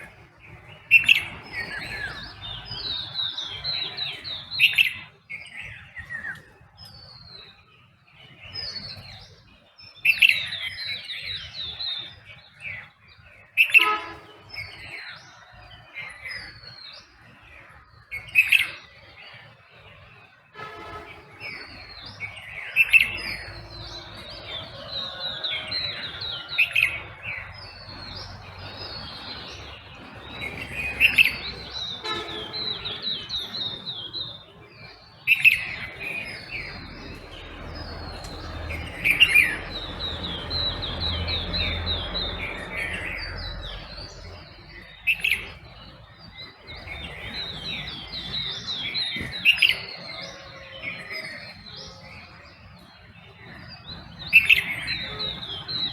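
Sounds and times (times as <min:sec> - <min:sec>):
birds chirping and trilling: 0:00.0 - 0:55.9
loud bird call: 0:13.6 - 0:14.9, 0:20.6 - 0:45.6.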